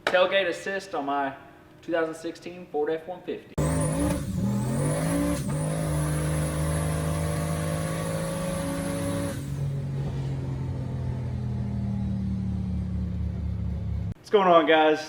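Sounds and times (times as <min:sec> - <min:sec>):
vehicle engine whining at high revs: 0:03.6 - 0:14.2.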